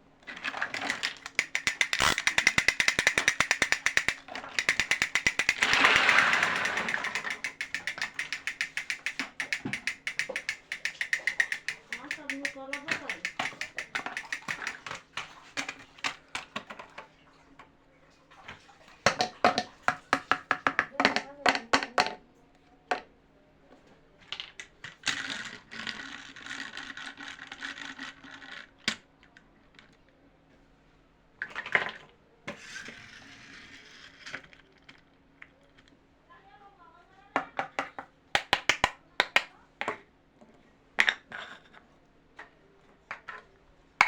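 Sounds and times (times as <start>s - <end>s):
sharp clicks and taps: 0.7s - 16.8s, 37.4s - 40.0s.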